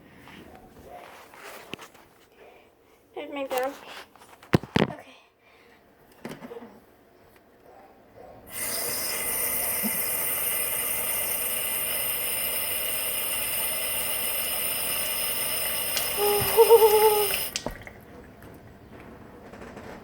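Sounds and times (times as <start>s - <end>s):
tap water running: 8.5s - 19.0s.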